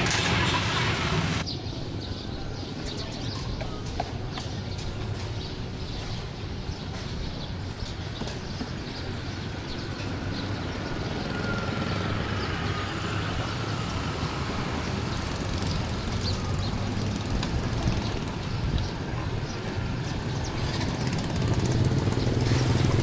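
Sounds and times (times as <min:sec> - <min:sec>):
passing road traffic: 0:00.0 - 0:01.5, 0:07.1 - 0:23.0.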